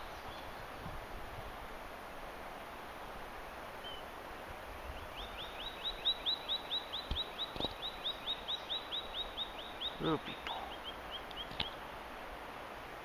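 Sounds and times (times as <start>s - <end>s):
steady outdoor hiss: 0.0s - 13.0s
bird chirping: 4.8s - 11.8s.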